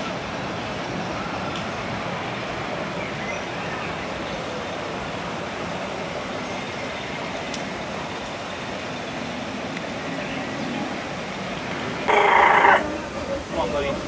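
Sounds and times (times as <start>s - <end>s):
faint voices: 12.0s - 14.0s.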